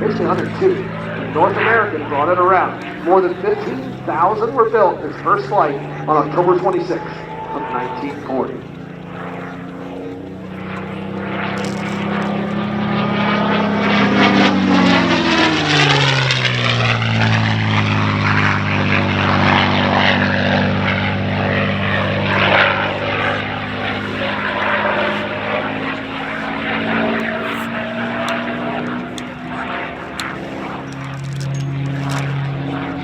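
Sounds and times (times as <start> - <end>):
propeller plane engine flyby: 0.0 - 33.0.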